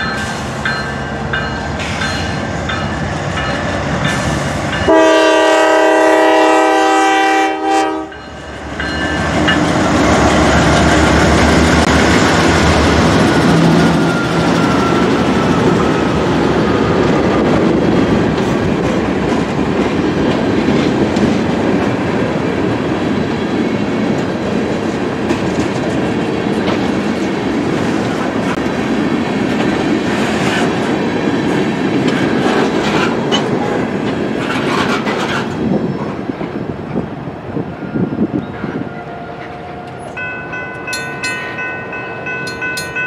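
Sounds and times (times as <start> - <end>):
crossing bells ringing: 0.0 - 5.5, 8.0 - 11.1, 13.2 - 17.1, 40.0 - 43.0
diesel locomotive passing: 0.0 - 43.0
train wheels clacking over rail joints: 29.3 - 35.6.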